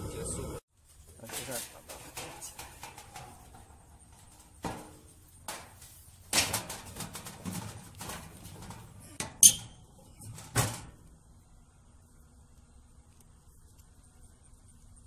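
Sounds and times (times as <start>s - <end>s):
tools knocking and clattering: 1.3s - 11.0s.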